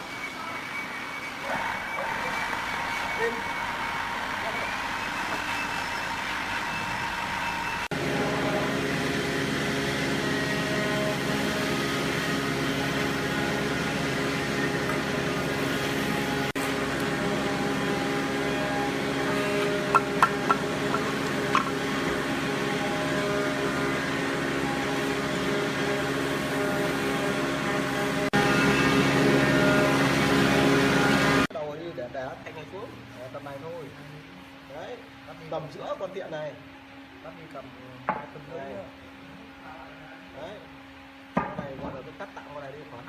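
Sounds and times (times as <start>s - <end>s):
electric motor humming: 7.8s - 31.5s.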